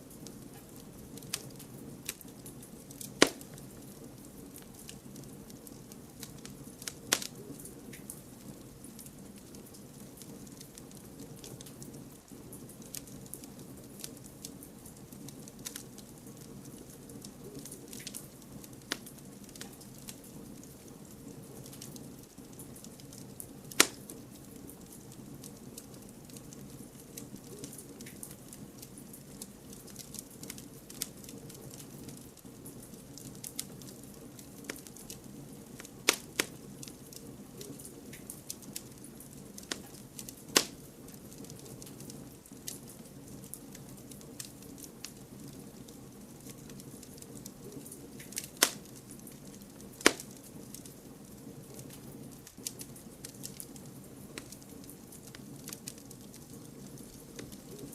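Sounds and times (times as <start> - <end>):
campfire crackling and hissing: 0.0 - 57.9
burning wood popping: 0.1 - 57.9.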